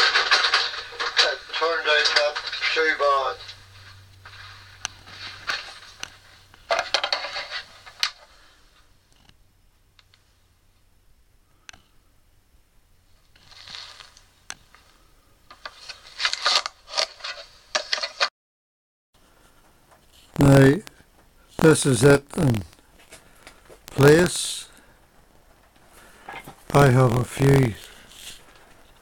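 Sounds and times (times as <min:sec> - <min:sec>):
scraping and rustling: 0:00.0 - 0:08.9, 0:13.3 - 0:18.3, 0:27.4 - 0:29.0.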